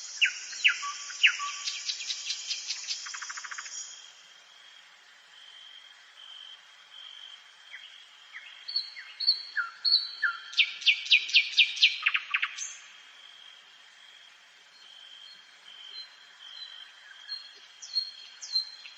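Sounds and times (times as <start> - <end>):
nightingale singing: 0.0 - 4.2, 7.7 - 13.0, 14.7 - 18.9.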